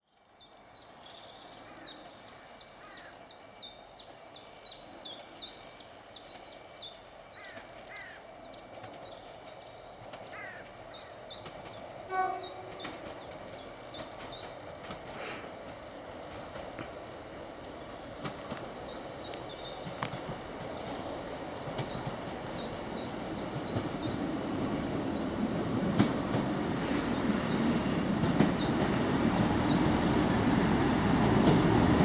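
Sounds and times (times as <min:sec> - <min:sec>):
low rumble of a train: 0:00.1 - 0:32.0
bird singing high falling notes: 0:12.0 - 0:13.1
train horn blast: 0:12.0 - 0:13.1.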